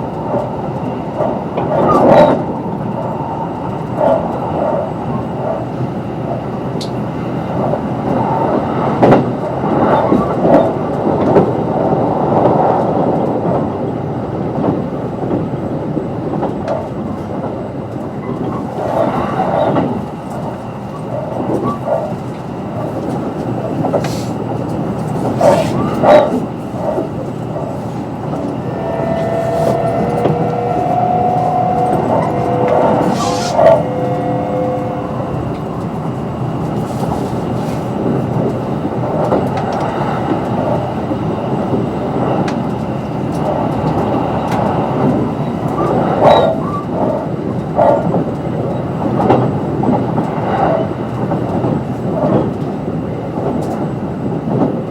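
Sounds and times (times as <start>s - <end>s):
train wheels rumbling on rail: 0.0s - 54.9s
traction motor hum: 27.0s - 36.7s.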